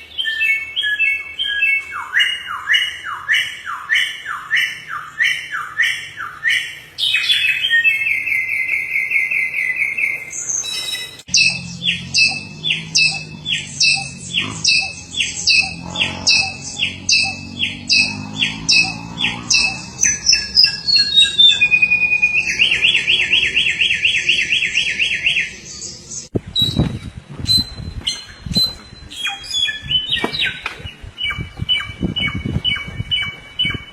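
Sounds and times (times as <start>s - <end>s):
songbird whistled song: 0.0s - 33.9s
fast buzzy bird trills: 10.7s - 25.3s.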